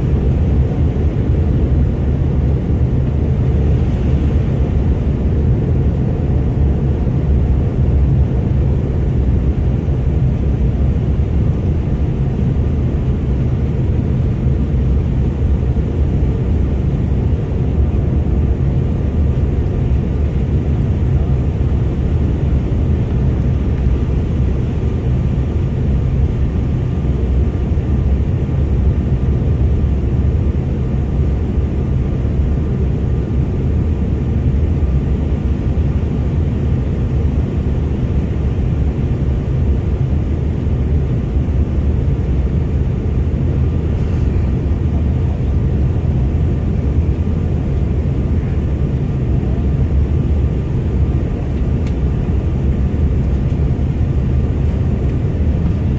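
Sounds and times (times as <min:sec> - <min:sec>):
airliner cabin drone: 0:00.0 - 0:55.9.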